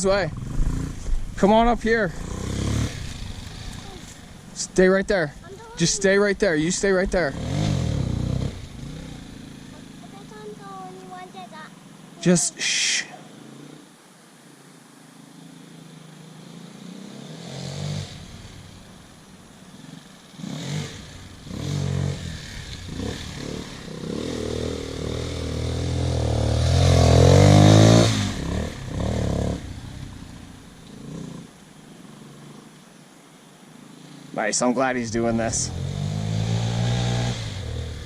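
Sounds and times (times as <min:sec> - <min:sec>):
motorcycle engine revving: 0:00.0 - 0:14.0, 0:15.2 - 0:32.8, 0:33.6 - 0:38.0.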